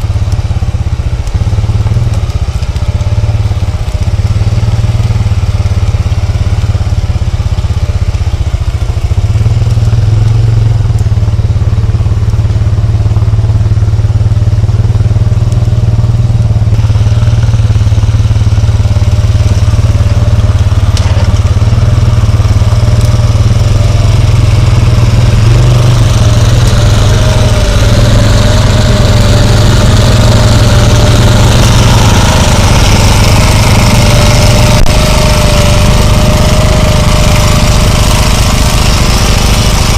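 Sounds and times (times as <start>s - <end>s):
atv engine running: 0.0s - 39.9s
thin whine: 15.4s - 39.9s.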